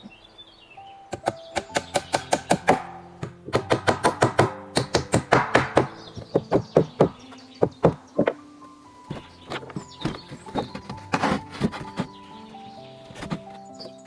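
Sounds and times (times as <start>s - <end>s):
hand tool knocking on wood: 1.2s - 8.4s.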